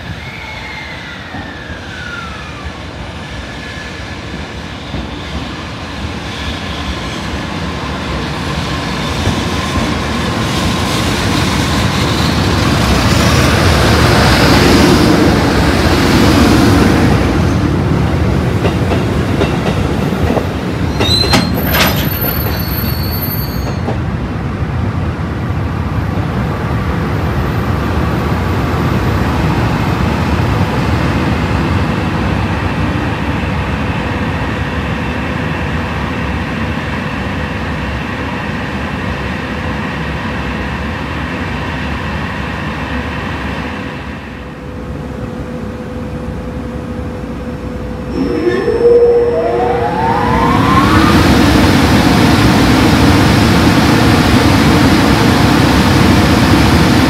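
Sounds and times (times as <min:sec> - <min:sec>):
electric locomotive hauling freight train: 0:00.0 - 0:57.0
short falling whine: 0:48.0 - 0:52.3.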